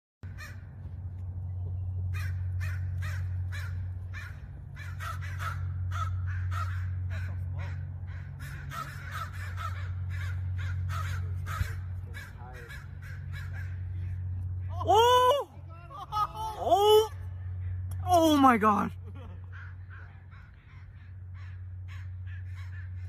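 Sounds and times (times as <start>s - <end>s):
birds cawing harshly: 0.2s - 0.9s, 2.0s - 15.1s, 19.4s - 23.0s
steady low hum: 0.2s - 23.0s.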